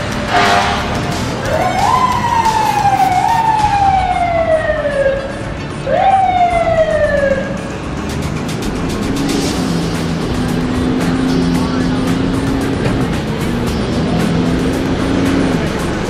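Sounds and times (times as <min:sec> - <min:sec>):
short loud siren blast: 0:00.3 - 0:05.0
emergency siren wailing: 0:00.3 - 0:07.9.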